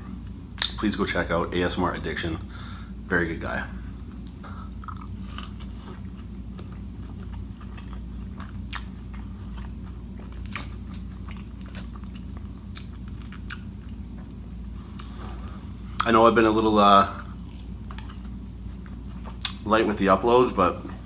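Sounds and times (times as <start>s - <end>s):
man chewing: 3.8s - 19.7s.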